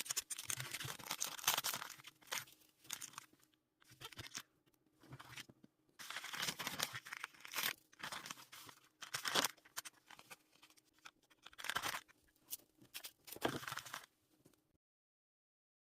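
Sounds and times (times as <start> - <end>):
plastic and tape crinkling: 0.0 - 4.5, 5.1 - 14.1.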